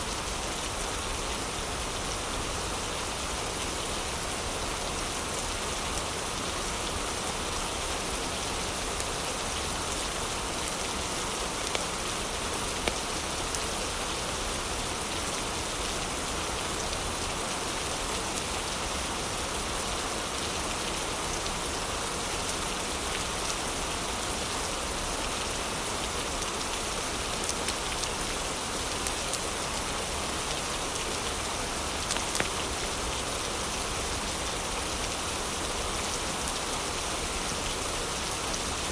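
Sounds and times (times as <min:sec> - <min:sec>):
heavy rain: 0:00.0 - 0:38.9
fireplace fire crackling: 0:32.0 - 0:32.8.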